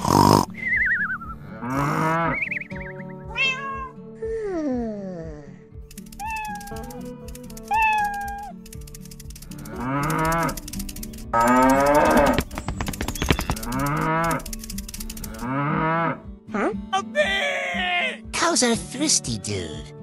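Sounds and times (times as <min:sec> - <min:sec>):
light rhythmic music: 0:00.5 - 0:04.4, 0:05.6 - 0:19.0
cows mooing: 0:01.6 - 0:02.5, 0:09.6 - 0:10.7, 0:11.3 - 0:14.5, 0:15.1 - 0:16.2
cat meow: 0:03.3 - 0:03.9, 0:06.2 - 0:06.9.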